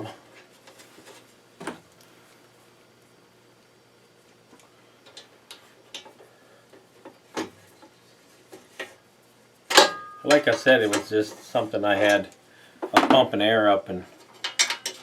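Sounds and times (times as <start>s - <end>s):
tools clicking and tapping: 9.7s - 11.1s, 14.2s - 15.0s.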